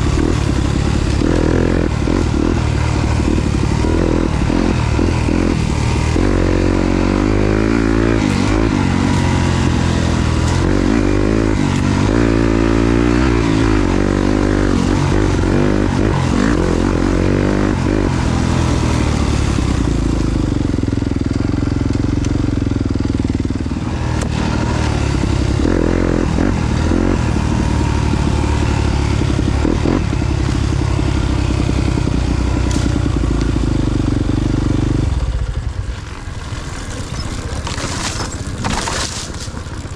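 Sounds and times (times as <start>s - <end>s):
dirt bike engine revving: 0.0s - 39.9s
chassis and ground clatter: 35.4s - 39.9s.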